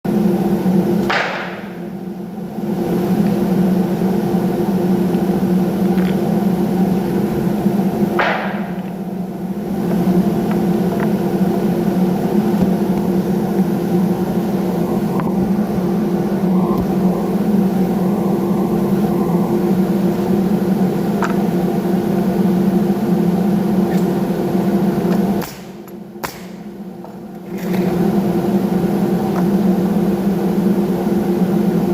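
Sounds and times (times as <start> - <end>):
woodworking machine motor humming: 0.1 - 31.9.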